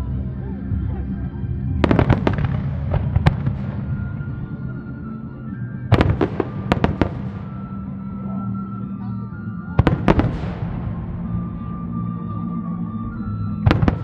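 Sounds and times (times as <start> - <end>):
music playing: 0.0 - 14.0
fireworks bursting with crackle: 1.8 - 4.7, 5.8 - 8.1, 9.8 - 12.0, 13.6 - 14.0.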